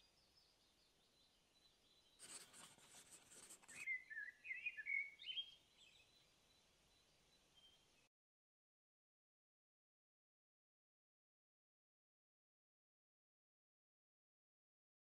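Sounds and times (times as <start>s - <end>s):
faint bird song: 0.0s - 8.1s
rustling noise: 2.2s - 3.8s.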